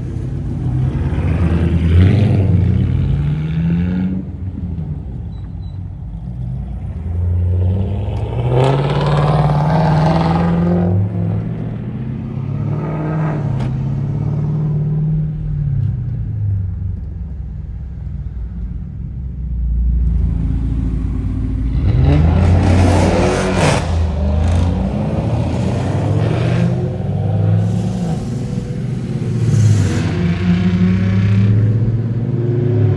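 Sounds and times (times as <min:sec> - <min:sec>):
car engine rumbling and revving: 0:00.0 - 0:32.9.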